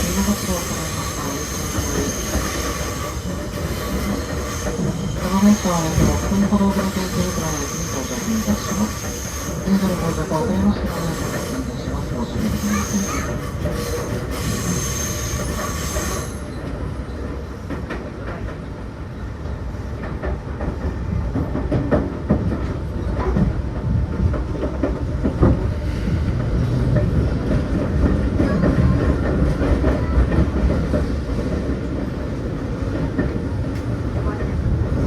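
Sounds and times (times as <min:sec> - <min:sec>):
train running rumble: 0:00.0 - 0:35.0
wheel squeal: 0:00.9 - 0:05.4, 0:12.4 - 0:16.6.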